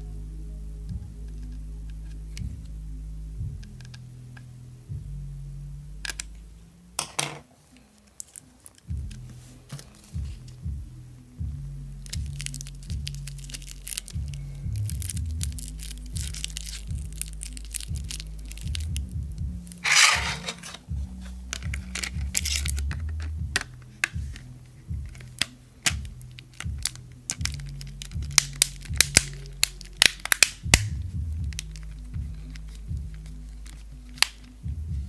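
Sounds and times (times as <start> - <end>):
background music with bass: 0.0 - 7.9, 8.9 - 35.0
rustling scrape: 19.8 - 21.4.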